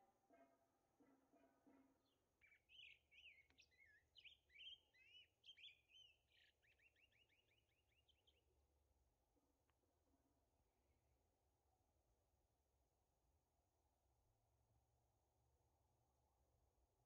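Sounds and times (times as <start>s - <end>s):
songbird singing faintly: 2.0s - 8.9s.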